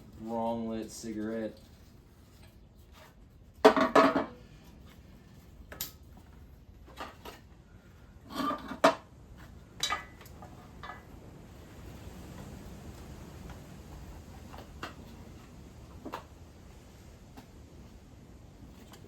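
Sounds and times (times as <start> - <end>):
hard objects clattering: 3.6 - 4.5.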